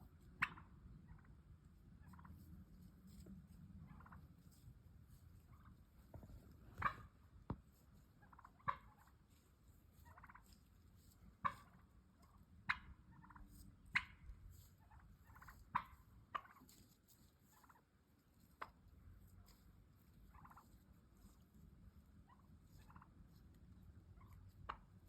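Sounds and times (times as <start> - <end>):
turkey clucking: 0.1 - 25.0
turkey purring: 0.3 - 1.4, 5.4 - 7.2, 22.2 - 25.0.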